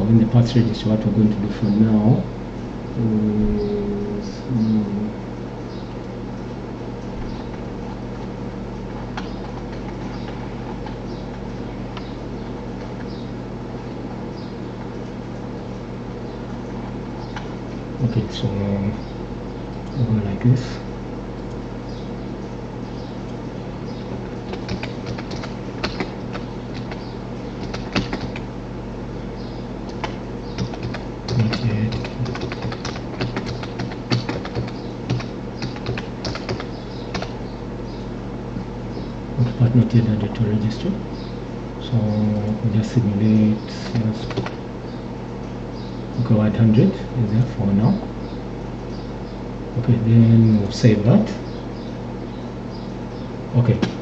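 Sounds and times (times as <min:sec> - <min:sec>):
low electrical hum and hiss: 0:00.0 - 0:54.0
keyboard keystrokes: 0:24.2 - 0:27.0, 0:27.6 - 0:28.4, 0:29.9 - 0:37.3, 0:43.8 - 0:44.6.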